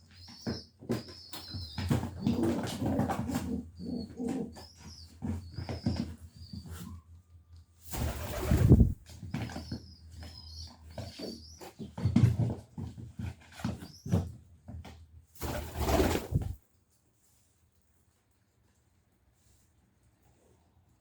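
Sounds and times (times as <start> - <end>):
pigeons scuffling: 0.1 - 7.0, 7.8 - 16.6
pigeon wings flapping: 7.9 - 9.0, 15.4 - 16.6.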